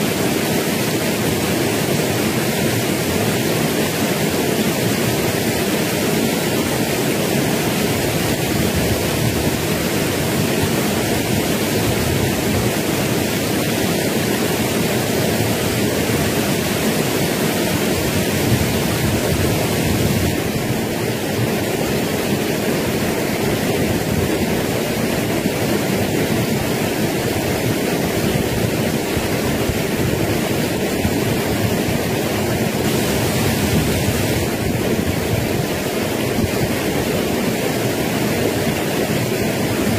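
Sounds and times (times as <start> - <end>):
fast-flowing stream water: 0.0 - 39.9.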